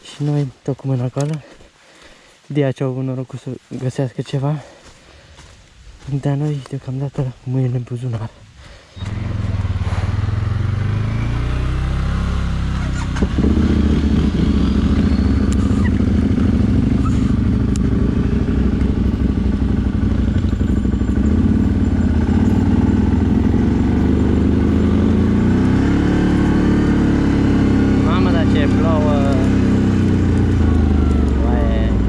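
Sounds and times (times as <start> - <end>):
atv engine running: 8.6 - 32.0.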